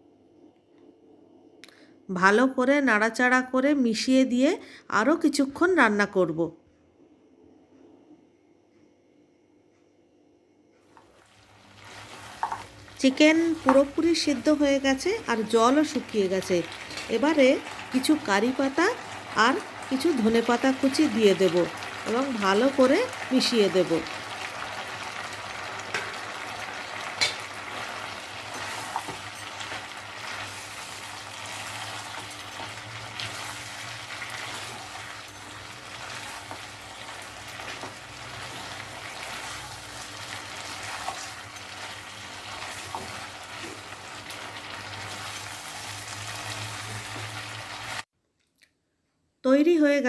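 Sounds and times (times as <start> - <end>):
chicken sizzling in a pan: 11.1 - 48.1
spatula scraping a pan: 27.1 - 43.9.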